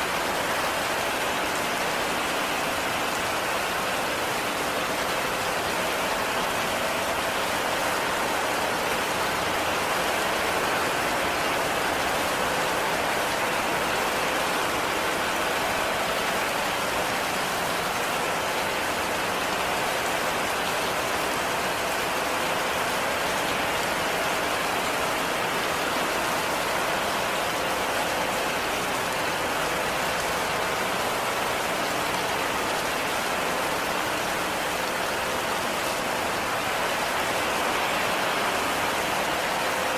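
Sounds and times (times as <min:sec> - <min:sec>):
heavy rain on a roof: 0:00.0 - 0:39.9.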